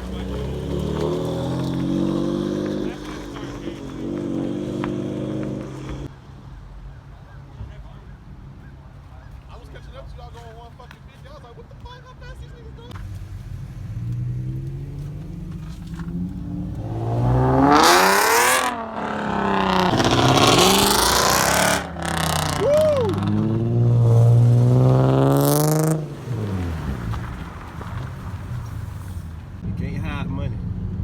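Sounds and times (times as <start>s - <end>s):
car engines revving: 0.0s - 6.1s, 12.9s - 31.0s.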